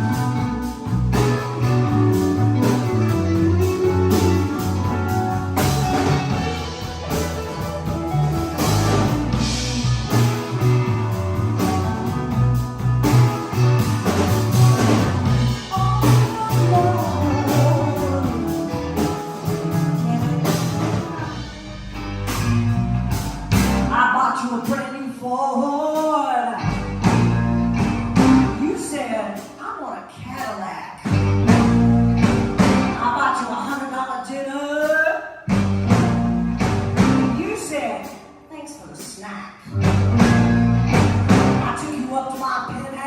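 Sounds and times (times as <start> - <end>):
walking bass: 0.0 - 24.2, 26.6 - 29.5, 31.0 - 33.7, 35.4 - 38.2, 39.6 - 43.0
electric guitar: 0.0 - 24.7, 25.8 - 29.6, 31.0 - 33.7, 35.2 - 38.5, 39.6 - 43.0
drums: 0.0 - 43.0
person singing: 14.5 - 22.0.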